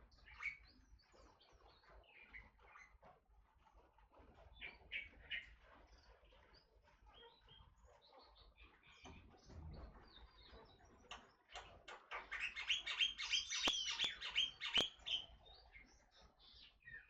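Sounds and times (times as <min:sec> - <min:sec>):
bird chirping harshly: 0:12.4 - 0:15.3
sharp clicks: 0:13.5 - 0:15.0.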